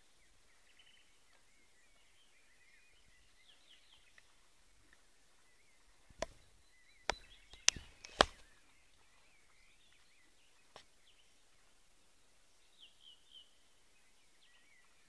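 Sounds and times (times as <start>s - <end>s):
faint bird chirping: 0.0s - 15.0s
sharp clicks: 7.1s - 8.5s.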